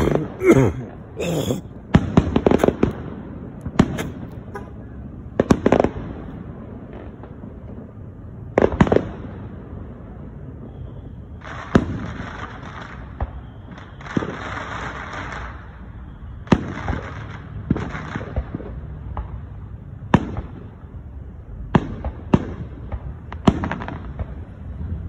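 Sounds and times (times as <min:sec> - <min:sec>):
fireworks bangs: 0:01.8 - 0:07.4, 0:11.4 - 0:15.8, 0:16.4 - 0:19.5, 0:21.7 - 0:25.0.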